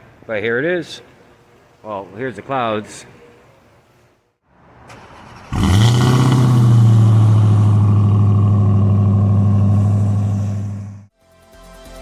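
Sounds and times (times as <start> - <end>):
car engine starting and idling: 4.6 - 11.1.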